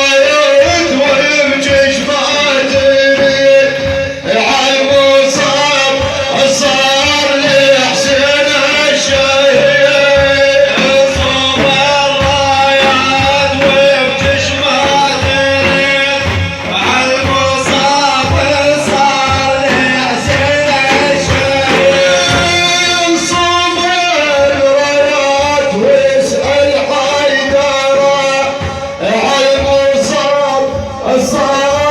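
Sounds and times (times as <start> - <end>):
drum beats: 0.0 - 31.9
men singing praise song: 0.0 - 31.9.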